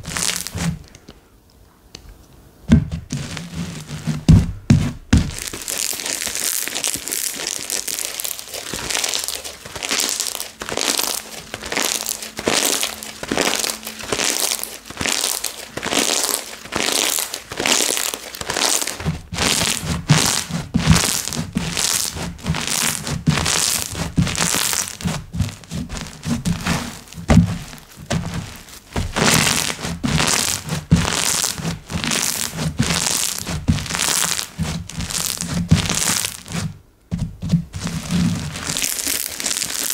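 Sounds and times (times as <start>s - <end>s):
deeper thuds: 2.7s - 5.5s, 22.4s - 29.3s
slime crackling pops: 5.2s - 25.3s.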